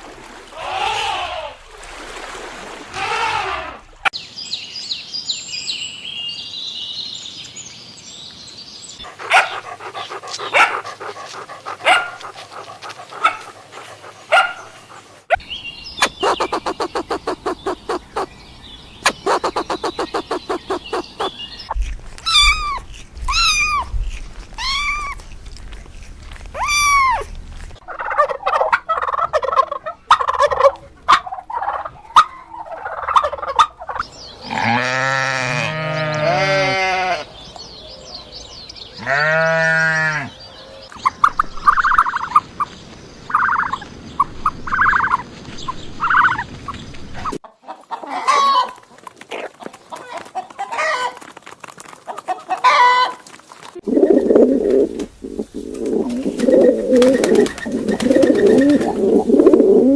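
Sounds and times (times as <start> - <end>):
rising and falling calls: 15.4 - 18.4, 19.0 - 21.7
high rapid animal calls: 16.0 - 18.4, 19.0 - 21.7
pulsed rattling calls: 19.1 - 21.4.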